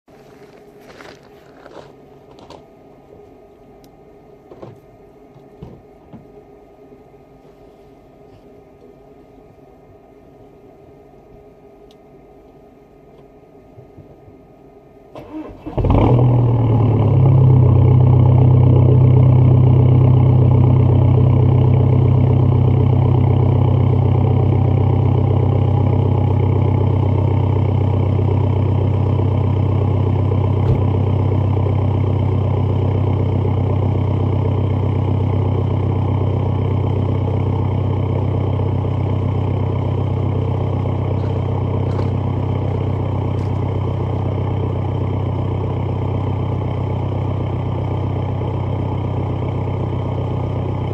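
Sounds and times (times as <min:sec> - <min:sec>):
diesel engine idling: 0:15.2 - 0:50.9.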